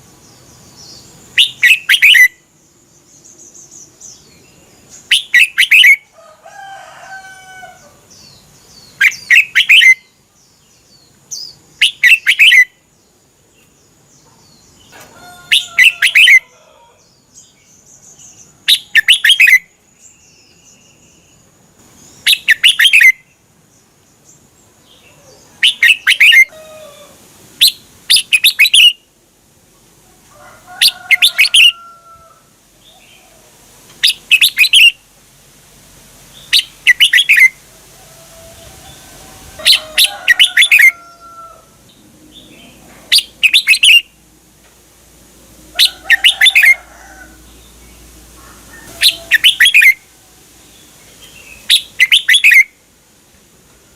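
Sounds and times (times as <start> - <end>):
soft chirps and whistles: 1.4 - 2.4, 5.1 - 6.0, 9.0 - 10.1, 11.4 - 12.7, 18.7 - 19.7, 22.2 - 23.2, 25.6 - 26.5, 34.0 - 35.0, 36.5 - 37.6, 43.1 - 44.1, 48.9 - 50.0, 51.6 - 52.7.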